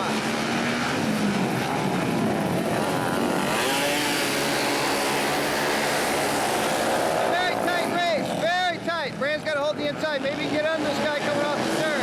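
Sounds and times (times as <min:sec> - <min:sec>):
racing motorcycles revving: 0:00.0 - 0:12.0.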